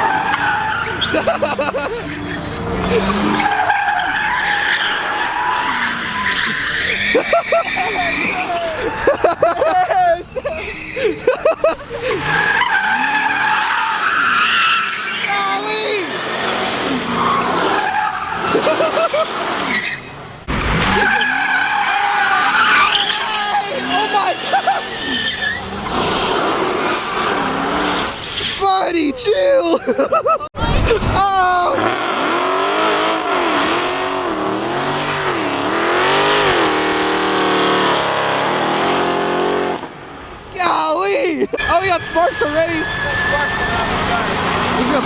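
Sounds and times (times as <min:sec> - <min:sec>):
tyres spinning and squealing: 0:00.0 - 0:45.0
car engine revving hard: 0:14.4 - 0:28.2, 0:31.8 - 0:40.1, 0:42.8 - 0:45.0.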